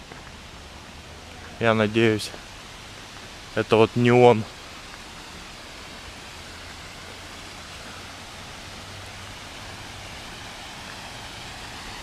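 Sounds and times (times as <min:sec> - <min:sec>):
water flowing in a stream: 0:00.0 - 0:12.0.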